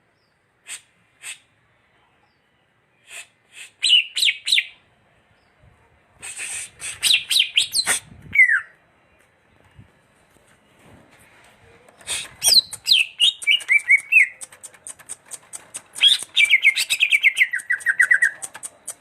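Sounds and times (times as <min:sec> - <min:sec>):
sharp ticks: 0:12.5 - 0:16.6, 0:17.4 - 0:19.0.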